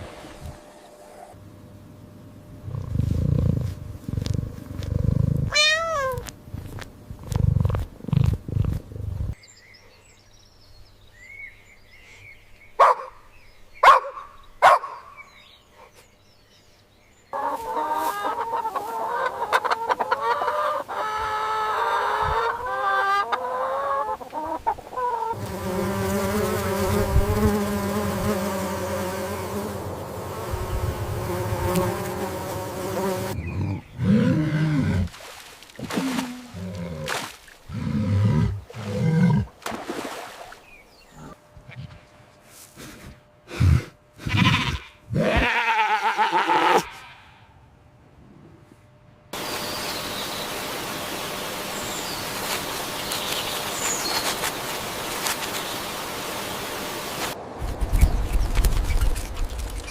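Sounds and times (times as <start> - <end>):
low rumbling animal call: 2.6 - 6.3, 33.4 - 35.1, 43.5 - 47.7
chorus of fowl calls: 17.4 - 25.4.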